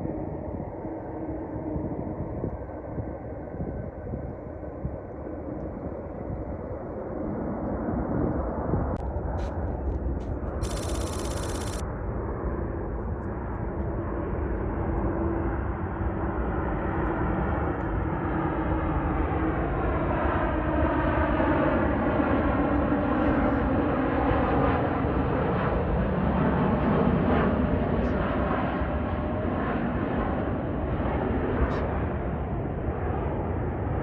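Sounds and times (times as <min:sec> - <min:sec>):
faint whining tones sliding down: 0:10.6 - 0:11.8
jet engine roar: 0:10.6 - 0:11.8.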